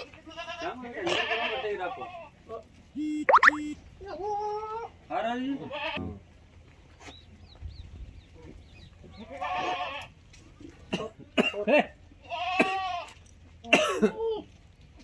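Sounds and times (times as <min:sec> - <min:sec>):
goats bleating: 0:00.0 - 0:02.4, 0:05.5 - 0:06.2, 0:09.2 - 0:10.2, 0:12.2 - 0:13.3.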